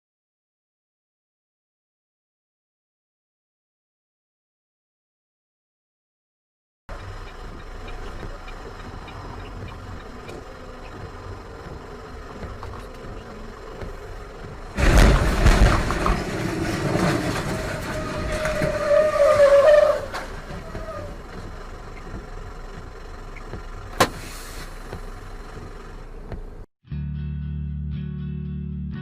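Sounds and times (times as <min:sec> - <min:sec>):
car road noise: 0:06.9 - 0:26.7
loud noisy commotion: 0:09.0 - 0:21.3
wavering squeal: 0:16.4 - 0:21.3.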